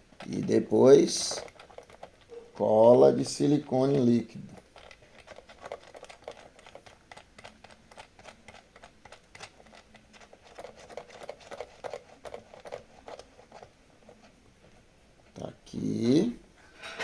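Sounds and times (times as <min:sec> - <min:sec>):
small parts clicking and tapping: 0:00.0 - 0:02.7, 0:03.9 - 0:13.7.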